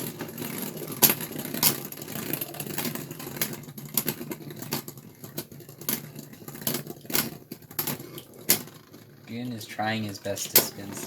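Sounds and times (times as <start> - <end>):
plastic tops clacking together: 10.1 - 11.0.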